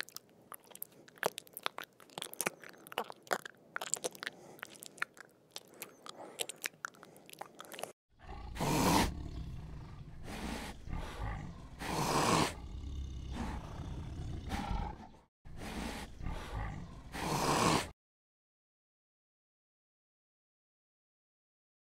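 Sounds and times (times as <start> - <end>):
tiger roaring: 8.2 - 17.9.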